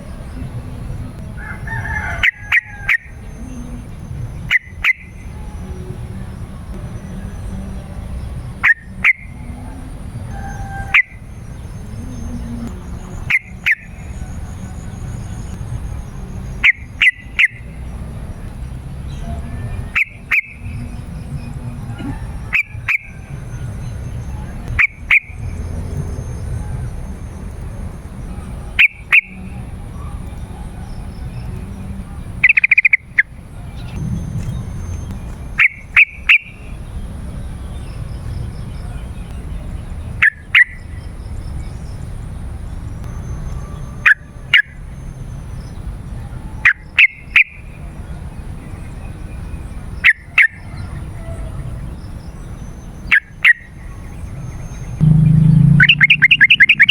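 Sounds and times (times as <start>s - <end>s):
steady low rumble: 33.8s - 36.8s, 55.0s - 56.9s
bulbul calling sharp notes: 55.0s - 56.9s.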